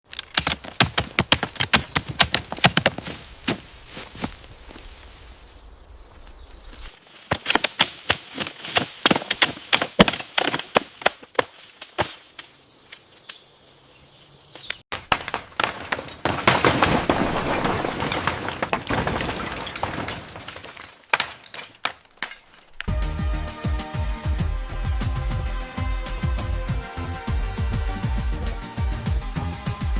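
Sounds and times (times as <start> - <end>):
building material breaking apart: 15.0 - 22.8.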